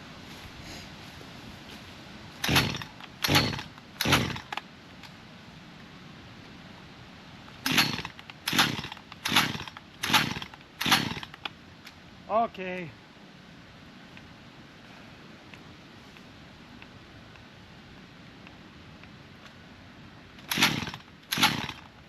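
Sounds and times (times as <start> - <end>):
chainsaw engine turning over: 2.4 - 4.6, 7.6 - 11.5, 20.4 - 22.0
chainsaw starter cord pulls: 2.4 - 4.6, 7.6 - 11.5, 20.4 - 21.9.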